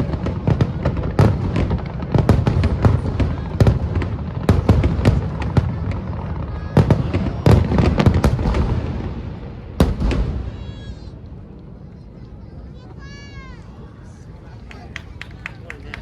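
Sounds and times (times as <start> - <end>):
firework bangs and cracks: 0.0 - 11.6.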